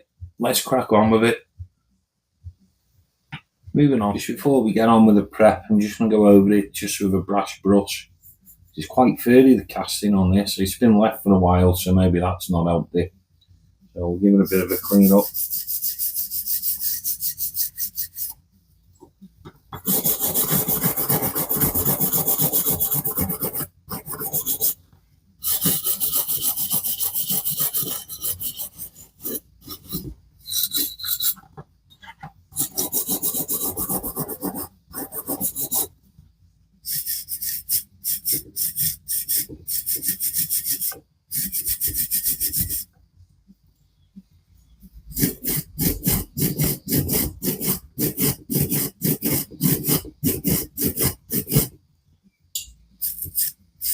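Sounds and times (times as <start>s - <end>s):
wire brush scrubbing metal: 14.3s - 18.3s, 19.8s - 24.8s, 25.4s - 31.4s, 32.5s - 35.9s, 36.8s - 42.8s, 45.1s - 51.8s.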